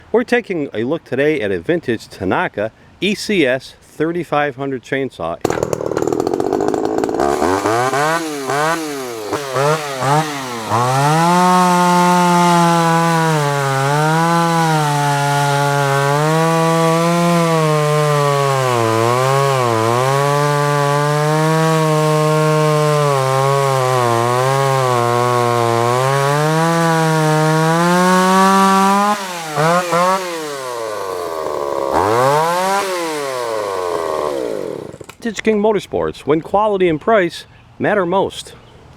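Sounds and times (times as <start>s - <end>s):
chainsaw revving: 5.4s - 35.2s.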